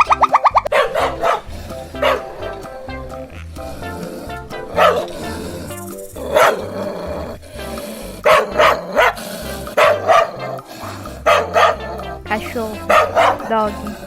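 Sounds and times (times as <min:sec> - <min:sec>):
background music: 0:00.0 - 0:14.0
dog barking: 0:00.6 - 0:02.8, 0:04.7 - 0:05.5, 0:06.2 - 0:06.7, 0:08.2 - 0:11.9, 0:12.8 - 0:13.6.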